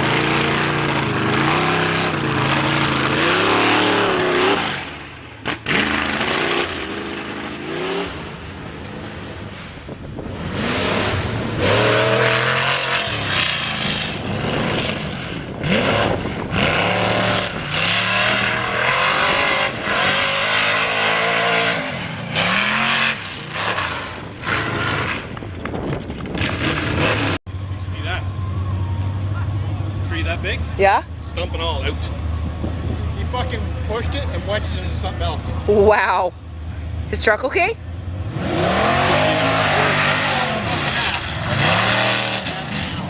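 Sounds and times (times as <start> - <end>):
race engines revving hard: 0.0 - 9.6, 10.2 - 25.4, 26.3 - 27.4, 38.2 - 43.0.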